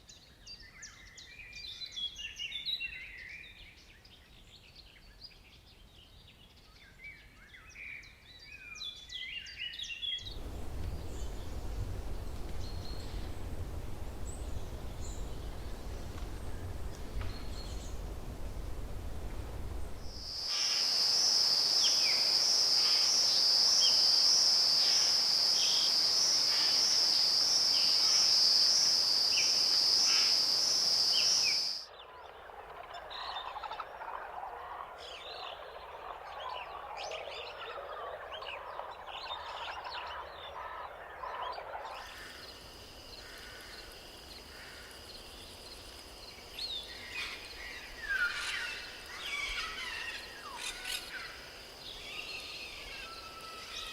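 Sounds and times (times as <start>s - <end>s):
chirping animal calls: 10.2s - 20.3s, 46.8s - 53.9s
bird calls: 10.2s - 20.8s, 37.5s - 53.9s
high pulsing insect buzz: 10.2s - 31.8s, 42.1s - 53.9s.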